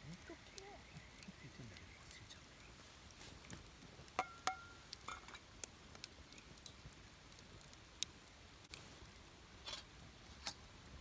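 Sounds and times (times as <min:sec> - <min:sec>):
campfire crackling and popping: 0:00.0 - 0:11.0
faint steady hiss: 0:00.0 - 0:11.0.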